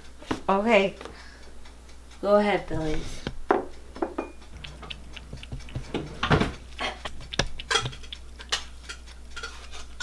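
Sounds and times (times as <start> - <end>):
utensils clinking against dishes: 3.6 - 10.0.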